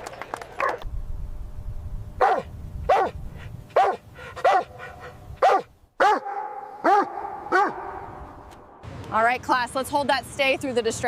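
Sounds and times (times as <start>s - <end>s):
dog barking: 2.2s - 3.2s, 3.8s - 8.0s.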